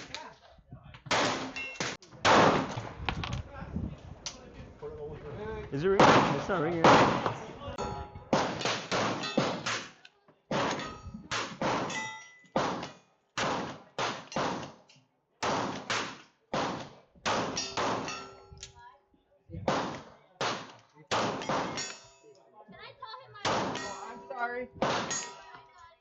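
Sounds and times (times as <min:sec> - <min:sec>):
gunshots with echo: 0:06.0 - 0:07.3, 0:24.8 - 0:25.3.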